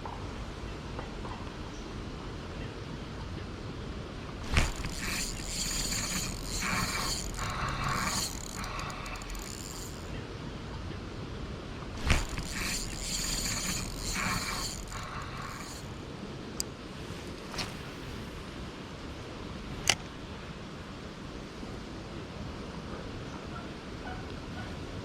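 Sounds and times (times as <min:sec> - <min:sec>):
fishing reel whirring: 0:04.4 - 0:10.1, 0:12.0 - 0:16.0.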